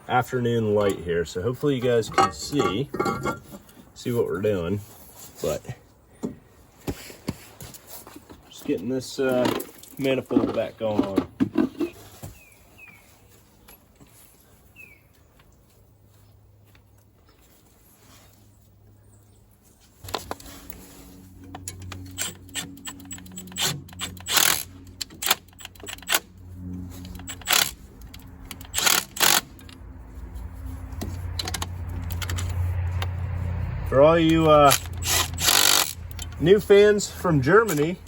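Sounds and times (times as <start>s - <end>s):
metal tools and bolts clinking: 1.9s - 3.8s, 34.3s - 36.6s
low hum: 20.1s - 37.2s.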